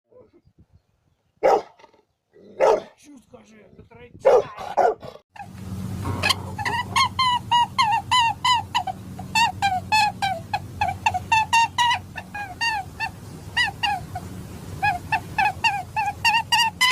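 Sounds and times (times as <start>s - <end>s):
low hum: 5.4s - 16.9s
fowl calling: 6.0s - 16.9s.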